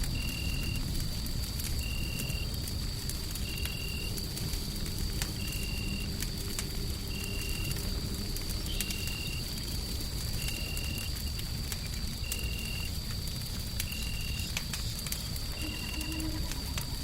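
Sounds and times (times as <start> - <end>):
wood fire crackling: 0.0 - 17.0
faint high whine: 15.5 - 17.0.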